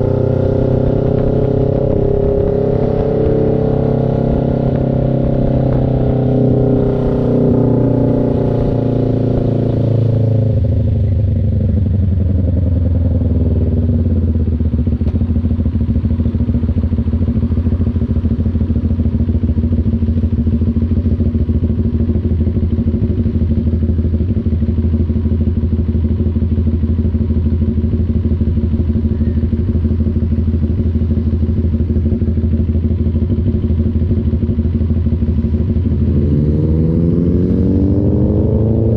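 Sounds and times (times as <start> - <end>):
motorcycle engine idling: 0.0 - 36.7.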